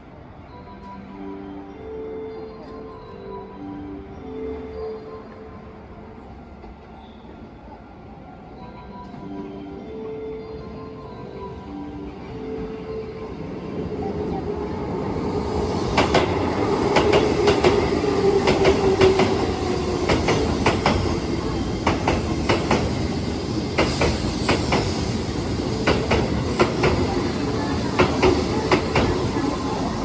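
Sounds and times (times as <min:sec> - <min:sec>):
train rumble: 0:12.1 - 0:30.0
train wheels clicking over joints: 0:15.7 - 0:30.0.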